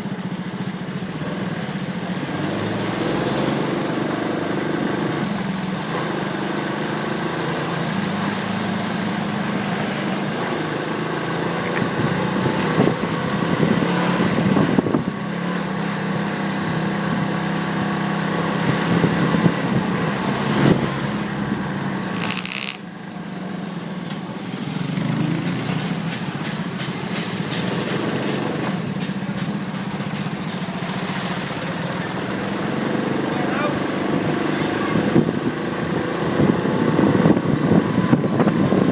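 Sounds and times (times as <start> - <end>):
road and traffic noise: 0.0 - 38.9
motorcycle engine running: 7.0 - 23.1.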